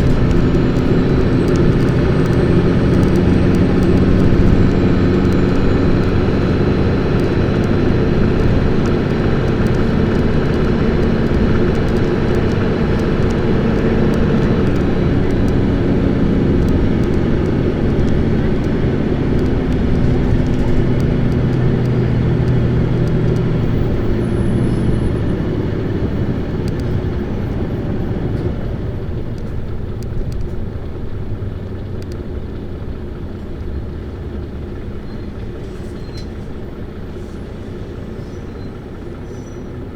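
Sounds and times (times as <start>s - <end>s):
bus diesel engine accelerating: 0.0s - 39.9s.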